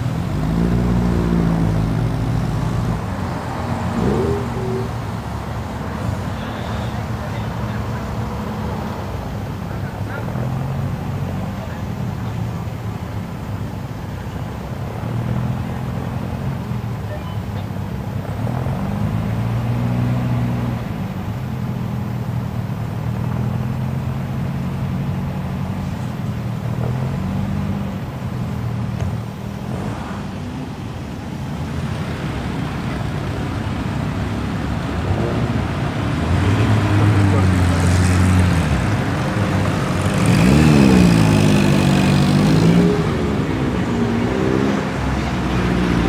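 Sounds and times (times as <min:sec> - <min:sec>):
louder engine: 0:00.0 - 0:05.2, 0:34.6 - 0:46.0
car engines idling: 0:00.0 - 0:46.0.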